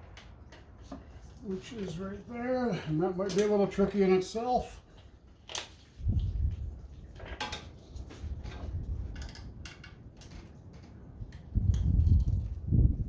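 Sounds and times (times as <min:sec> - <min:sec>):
small metallic clicks and clinks: 0:03.2 - 0:03.6.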